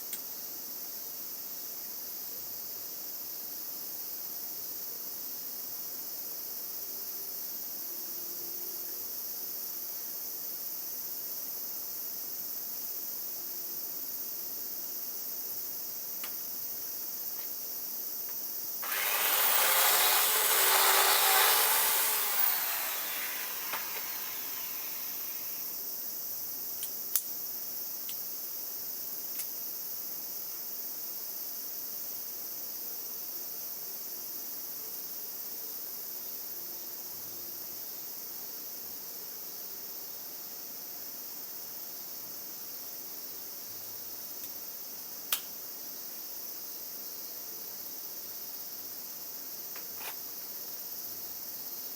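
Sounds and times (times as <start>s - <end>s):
loud noise: 18.8s - 25.6s
high insect chirring: 18.8s - 25.8s.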